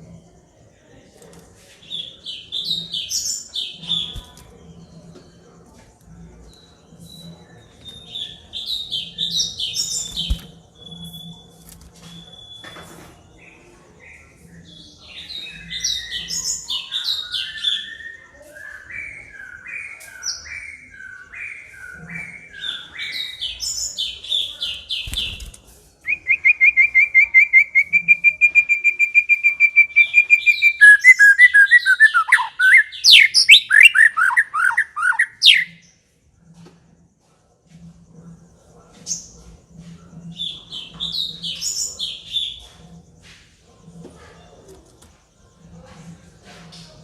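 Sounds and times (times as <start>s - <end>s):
bird singing whistled phrases: 26.1s - 35.7s.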